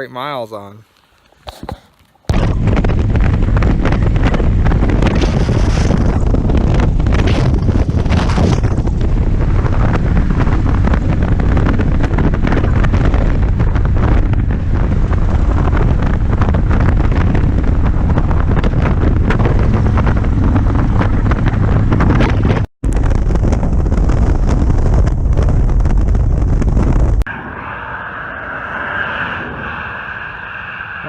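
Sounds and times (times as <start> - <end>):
wind buffeting microphone: 2.3 - 31.0
motorcycle engine running: 2.5 - 27.2.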